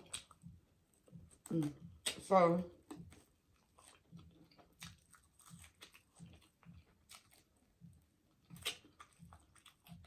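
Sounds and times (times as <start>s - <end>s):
person chewing chicken wing: 0.0s - 2.2s, 2.8s - 10.0s.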